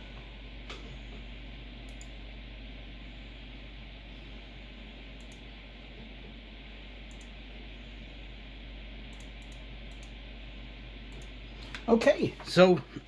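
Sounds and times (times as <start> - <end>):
low mains hum: 0.0 - 13.0
faint sharp clicks: 5.2 - 5.5.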